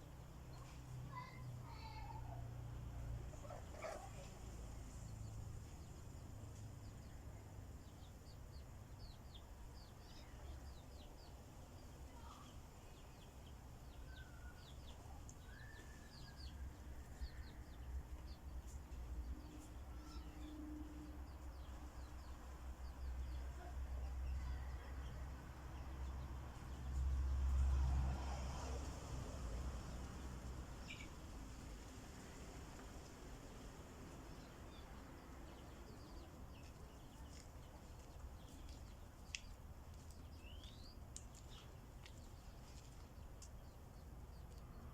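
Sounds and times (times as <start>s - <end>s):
small birds chirping: 0.0s - 2.4s, 3.3s - 27.6s, 30.4s - 44.9s.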